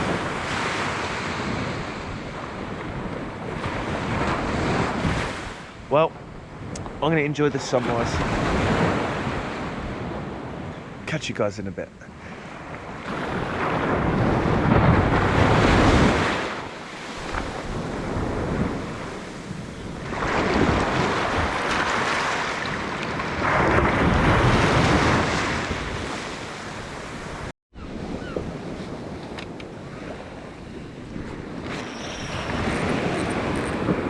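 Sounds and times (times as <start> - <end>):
sea waves breaking: 0.0 - 5.8, 12.1 - 27.5, 28.2 - 34.0
wind buffeting microphone: 8.2 - 11.0, 12.5 - 34.0.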